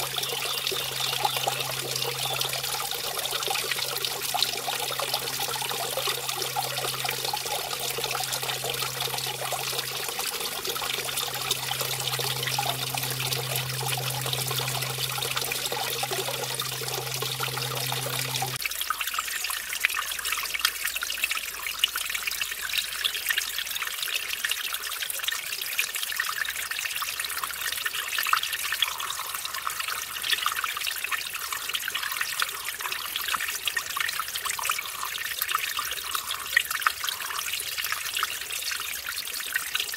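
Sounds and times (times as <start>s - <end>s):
stream splashing over waterfall: 0.0s - 20.9s.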